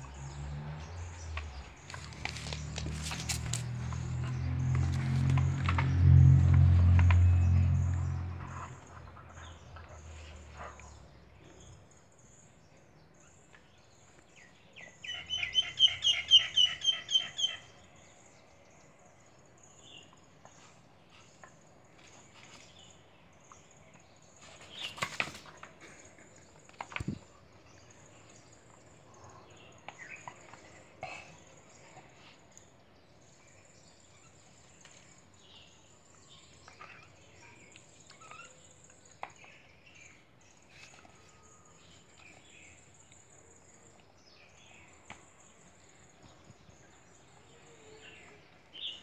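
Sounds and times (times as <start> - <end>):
low hum: 4.0 - 9.3
bird chirping: 6.7 - 18.7.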